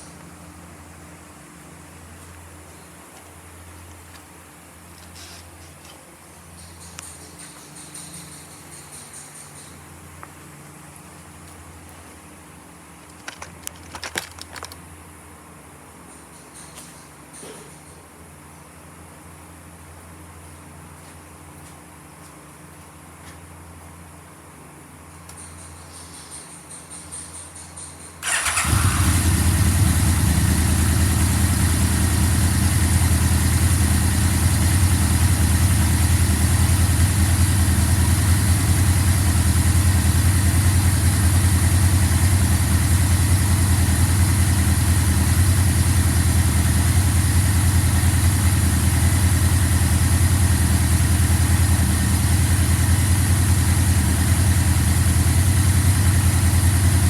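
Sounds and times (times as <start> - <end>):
motorcycle engine idling: 28.2 - 57.0.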